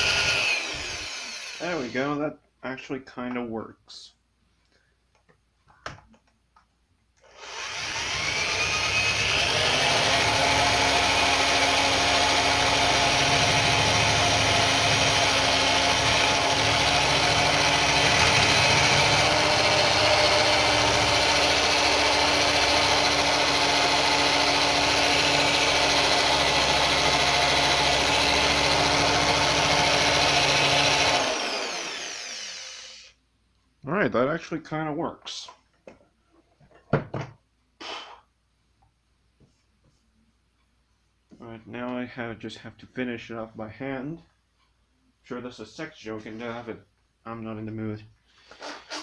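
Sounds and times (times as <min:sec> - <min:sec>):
electric drill motor whining: 0:00.0 - 0:02.0, 0:07.2 - 0:33.2, 0:48.4 - 0:49.0.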